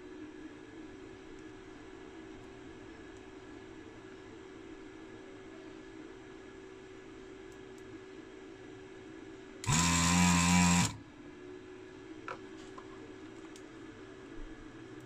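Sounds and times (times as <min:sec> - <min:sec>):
faint steady hum: 0:00.0 - 0:15.0
small electric motor buzzing: 0:09.6 - 0:11.0.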